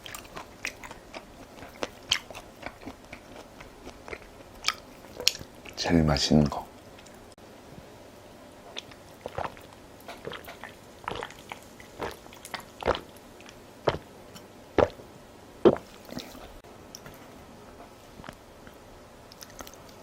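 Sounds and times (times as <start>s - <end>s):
wet chewing mouth sounds: 0.0s - 5.8s, 6.6s - 7.3s, 8.7s - 14.1s, 14.8s - 15.0s, 15.6s - 16.6s, 18.1s - 20.0s.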